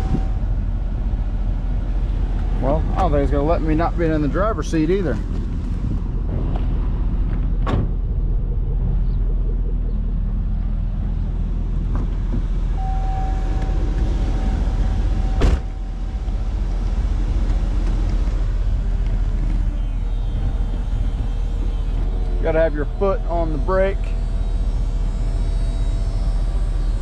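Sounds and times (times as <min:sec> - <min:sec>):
car engine idling: 0:00.0 - 0:27.0
sharp thump: 0:07.6 - 0:08.0, 0:15.4 - 0:15.7
steady electronic tone: 0:12.5 - 0:27.0.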